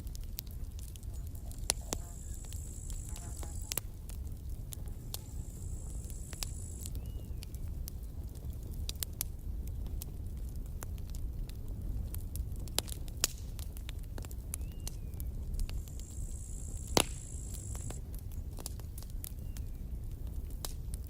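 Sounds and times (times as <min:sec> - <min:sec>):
campfire crackling and popping: 0:00.0 - 0:21.0
high hiss: 0:05.1 - 0:06.9, 0:15.7 - 0:18.0.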